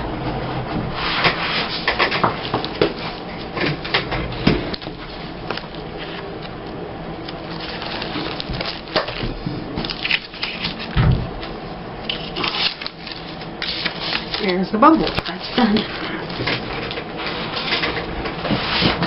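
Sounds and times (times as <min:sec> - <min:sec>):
paper rustling: 0:04.7 - 0:06.5, 0:07.2 - 0:11.5, 0:12.1 - 0:19.0.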